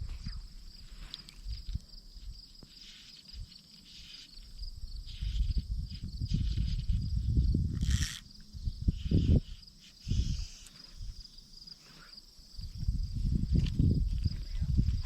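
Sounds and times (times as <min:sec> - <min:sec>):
rustle: 0:00.0 - 0:07.1
insects chirping: 0:00.0 - 0:15.0.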